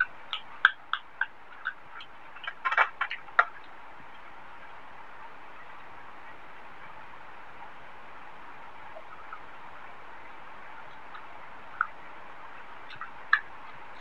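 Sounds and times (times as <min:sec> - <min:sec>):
close chewing mouth clicks: 0:00.0 - 0:03.8, 0:10.8 - 0:12.0, 0:12.8 - 0:14.0
steady hiss: 0:00.0 - 0:14.0.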